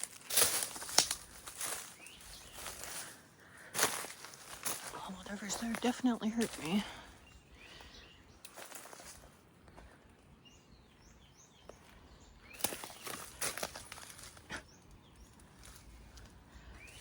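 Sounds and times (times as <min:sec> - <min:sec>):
footsteps crunching on leaves: 0:00.0 - 0:07.2, 0:07.8 - 0:09.9, 0:11.6 - 0:14.5
small bird chirps: 0:10.3 - 0:17.0.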